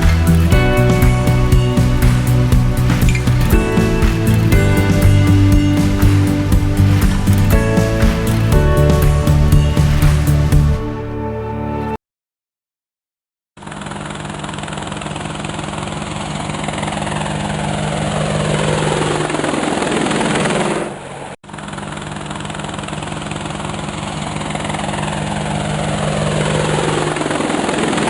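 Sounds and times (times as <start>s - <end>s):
helicopter rotor chop: 0.0s - 11.0s.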